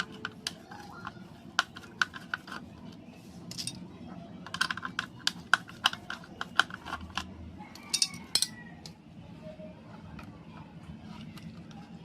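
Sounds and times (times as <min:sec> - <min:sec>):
small hard parts clicking: 0:03.5 - 0:03.8, 0:04.5 - 0:09.0.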